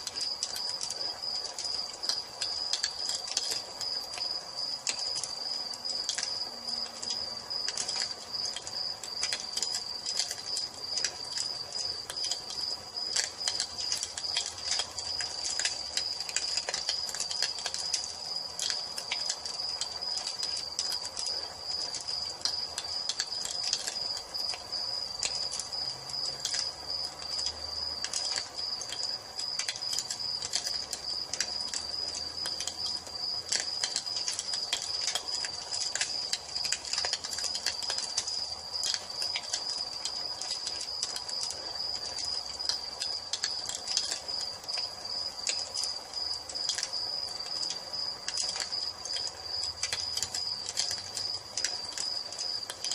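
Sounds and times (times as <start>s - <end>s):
crickets chirping: 0.0s - 52.9s
wood fire crackling and popping: 0.0s - 52.9s.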